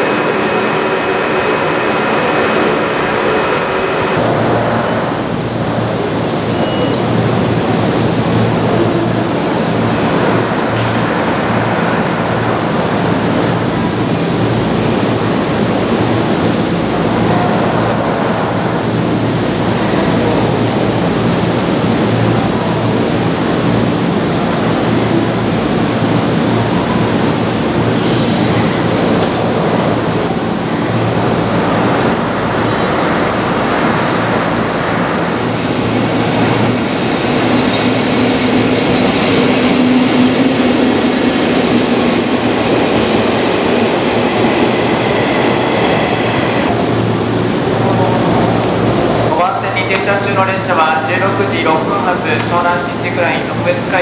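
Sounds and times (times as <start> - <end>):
high whine: 0.0 - 7.1, 27.9 - 54.0
train rumbling on rails: 0.0 - 54.0.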